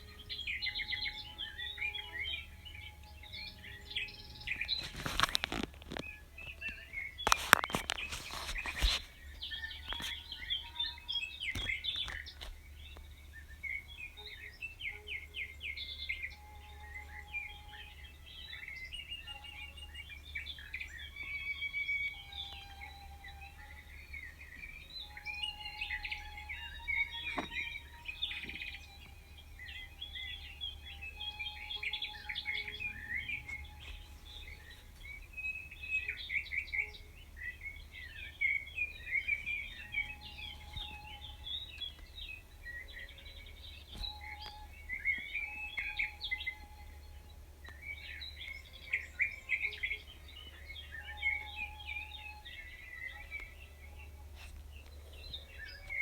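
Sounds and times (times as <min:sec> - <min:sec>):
birds singing and chirping: 0:00.0 - 0:56.0
faint low hum: 0:00.0 - 0:56.0.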